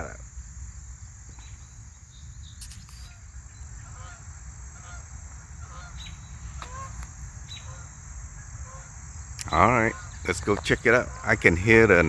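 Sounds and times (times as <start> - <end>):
insects droning: 0.0 - 12.0
geese honking: 1.2 - 12.0.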